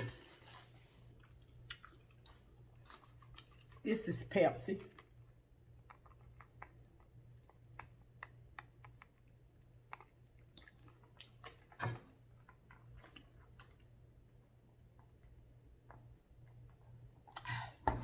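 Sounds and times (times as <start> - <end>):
faint chewing: 0.0 - 3.9, 4.8 - 11.7.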